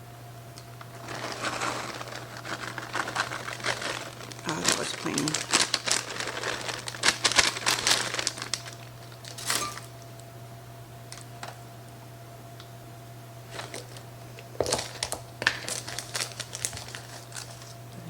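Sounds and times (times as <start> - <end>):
low electrical hum: 0.0 - 18.0
plastic packaging crinkling: 0.8 - 10.0, 13.5 - 17.8.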